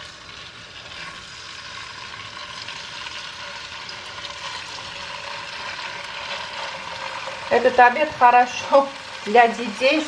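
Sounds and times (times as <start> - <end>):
chicken sizzling in a frying pan: 0.0 - 10.0.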